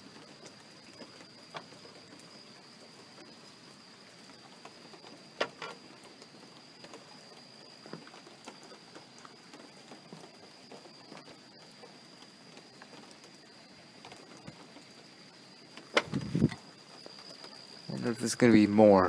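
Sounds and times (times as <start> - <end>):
light rain hiss: 0.0 - 19.0
water drips: 0.0 - 19.0.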